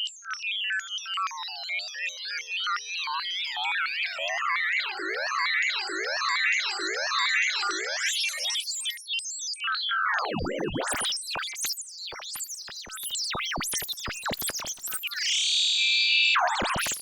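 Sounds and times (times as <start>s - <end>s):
robot beeps and whistles: 10.2s - 15.6s, 16.4s - 17.0s.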